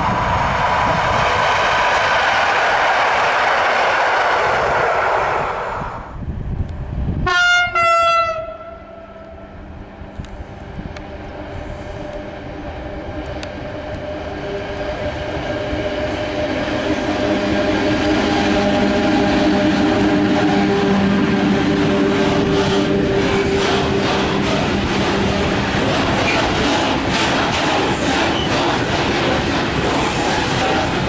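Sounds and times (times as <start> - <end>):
electric train passing: 0.0 - 31.0
locomotive hum and wheel noise: 0.0 - 31.0
train horn blast: 7.2 - 9.6, 14.3 - 25.8.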